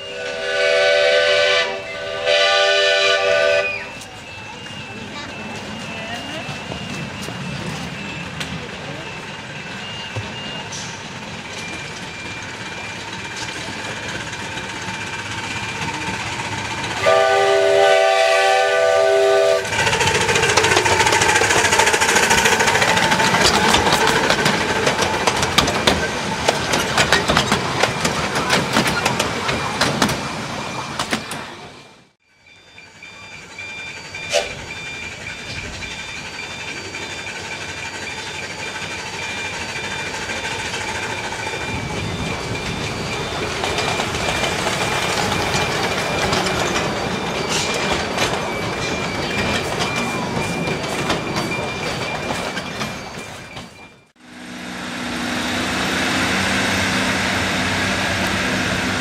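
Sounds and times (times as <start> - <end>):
train whistle: 0.0 - 5.0, 16.9 - 19.9, 34.2 - 35.0
train rattling past: 0.0 - 59.0
wheels clicking over rail joints: 19.5 - 31.7, 33.9 - 54.1.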